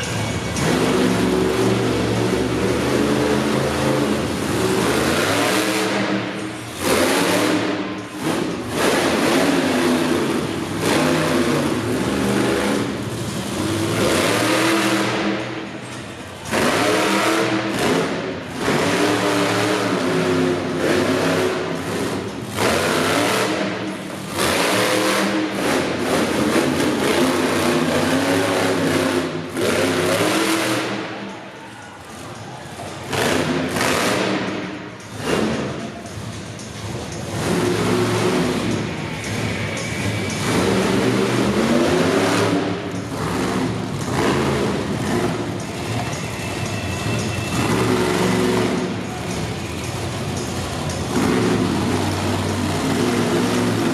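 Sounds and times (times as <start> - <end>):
truck engine revving in bursts: 0.4 - 31.3, 33.0 - 53.9.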